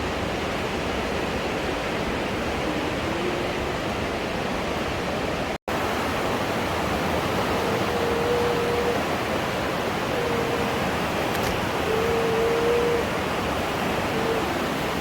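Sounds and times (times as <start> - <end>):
turbulent river water roaring: 0.0 - 15.0.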